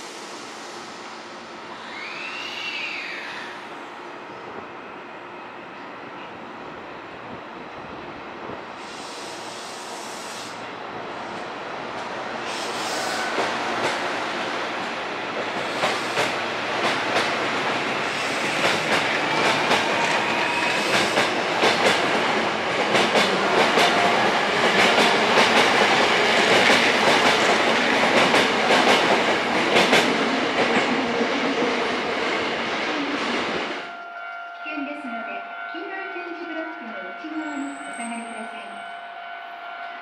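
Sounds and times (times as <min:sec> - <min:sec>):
train rumble: 0:06.2 - 0:34.0
train wheels clacking over joints: 0:15.4 - 0:22.2.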